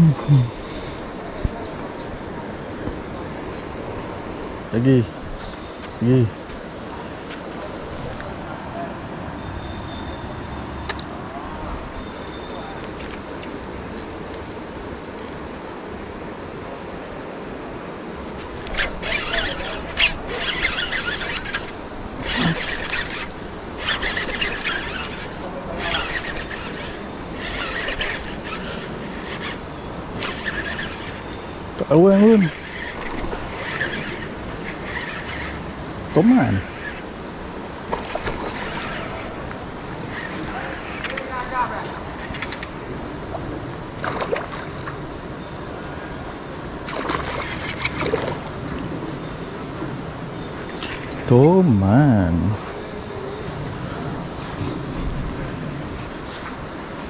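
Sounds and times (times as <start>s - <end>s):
fishing reel being cranked: 15.2s - 15.4s, 18.6s - 37.2s, 38.2s - 41.5s, 46.9s - 48.4s.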